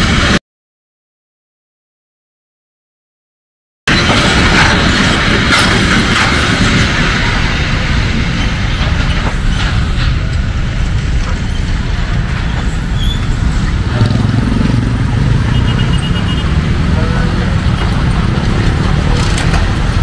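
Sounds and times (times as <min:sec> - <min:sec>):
wheels clacking over rail joints: 0:03.9 - 0:15.0, 0:16.6 - 0:20.0
freight train wagons rumbling: 0:03.9 - 0:20.0.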